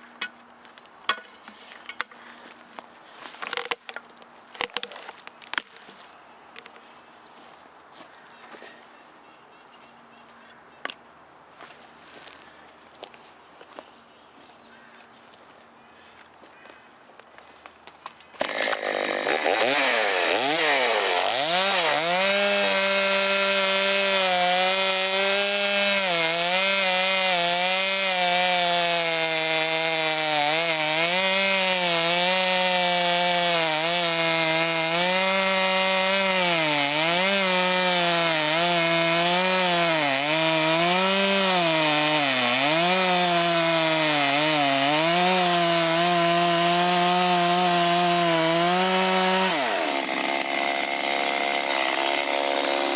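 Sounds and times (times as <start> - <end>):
chainsaw cutting wood: 18.4 - 52.9.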